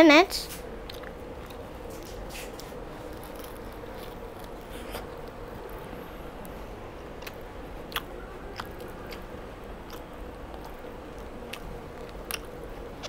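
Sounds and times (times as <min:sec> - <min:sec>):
faint steady hum: 0:00.0 - 0:13.0
soft crunches and mouth clicks: 0:00.5 - 0:06.6, 0:07.2 - 0:13.0
person chewing: 0:00.8 - 0:06.6, 0:07.2 - 0:13.0.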